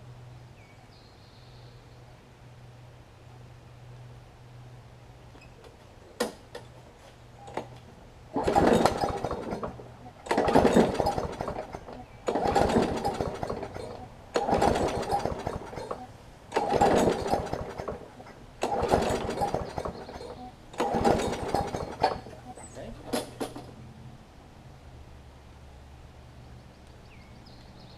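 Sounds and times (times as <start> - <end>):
mower engine recoil pulls: 7.4 - 23.8.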